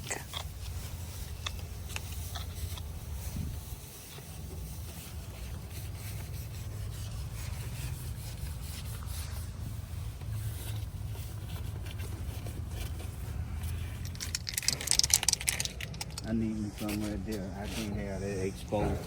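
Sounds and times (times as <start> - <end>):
hand rubbing plastic lens: 0.0 - 19.0
steady low rumble: 0.0 - 19.0.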